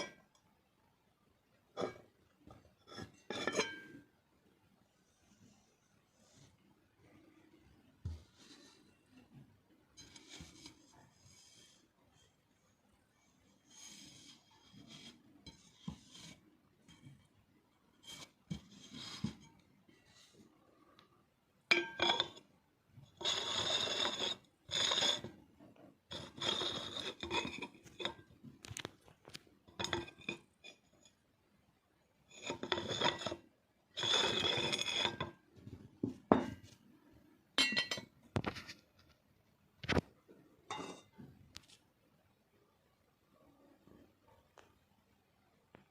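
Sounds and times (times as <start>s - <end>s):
porcelain scraping strokes: 2.6s - 4.0s, 8.0s - 9.2s, 10.0s - 12.3s, 13.3s - 17.2s, 17.9s - 20.5s, 23.1s - 25.4s, 26.1s - 28.9s, 32.3s - 35.4s
china clinking: 37.6s - 38.1s.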